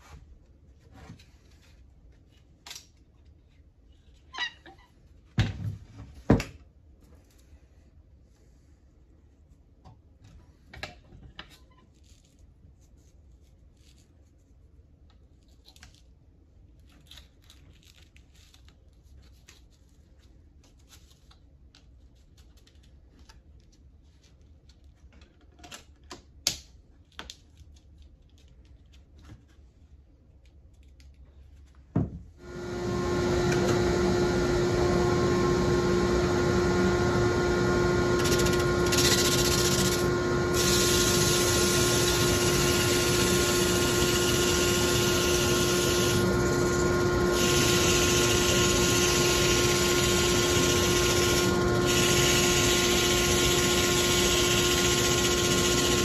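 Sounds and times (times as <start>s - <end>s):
electric power tool humming: 32.4s - 56.0s.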